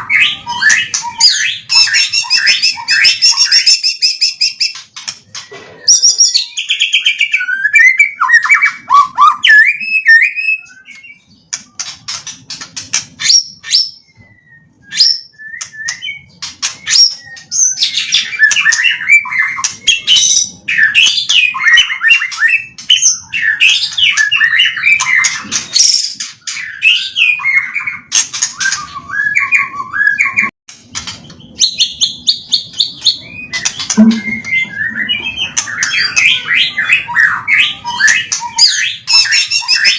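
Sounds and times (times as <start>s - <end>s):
bird singing varied whistles: 31.6s - 39.9s.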